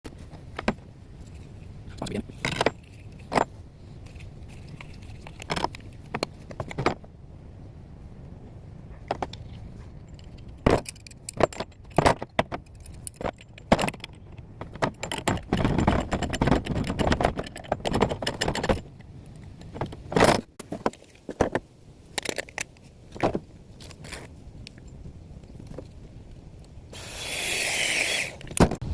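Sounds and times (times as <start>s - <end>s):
rattling and scraping: 0.1s - 7.1s, 8.9s - 25.0s
metal clinks and knocks: 0.5s - 7.1s, 9.0s - 25.0s.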